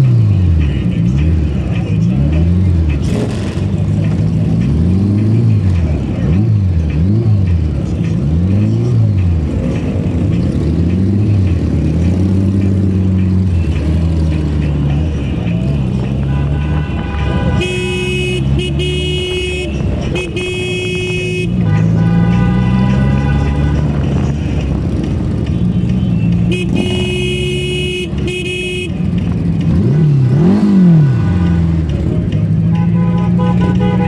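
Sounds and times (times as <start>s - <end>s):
motorcycle engines revving: 0.0s - 34.0s
vehicle horns honking: 15.8s - 24.3s, 25.4s - 34.0s.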